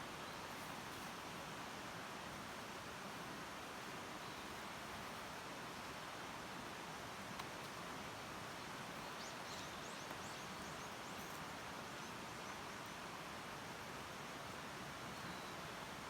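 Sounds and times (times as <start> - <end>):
faint outdoor hiss: 0.0 - 16.0.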